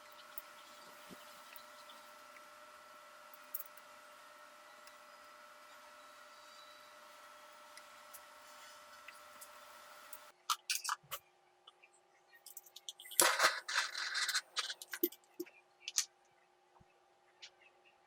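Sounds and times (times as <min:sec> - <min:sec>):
steady hum: 0:00.0 - 0:11.2.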